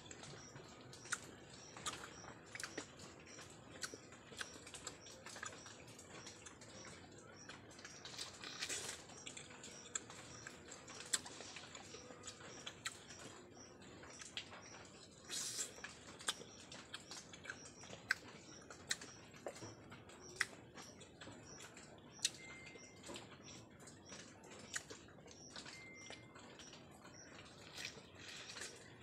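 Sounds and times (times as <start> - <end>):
chewing honeycomb: 0.0 - 29.0.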